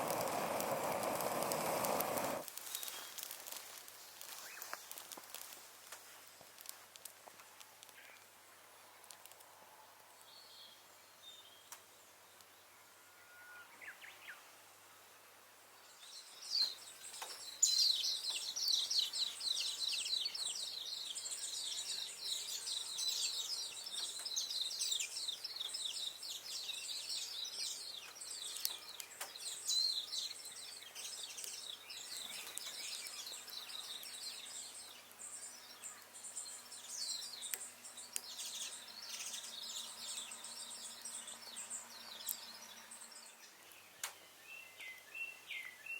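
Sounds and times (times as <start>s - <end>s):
wood fire crackling: 0.0s - 10.3s, 16.7s - 42.4s
small birds chirping: 0.0s - 12.8s, 15.8s - 45.9s.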